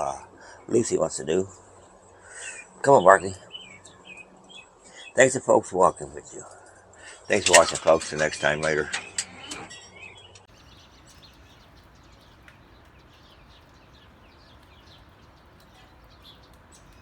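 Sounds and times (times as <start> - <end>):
faint bird chirping: 1.5 - 5.4, 8.9 - 17.0.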